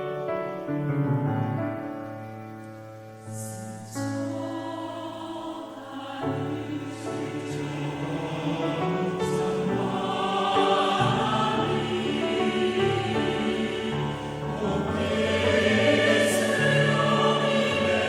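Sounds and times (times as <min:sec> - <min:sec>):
piano chords: 0:00.0 - 0:18.0
choir singing: 0:03.2 - 0:18.0.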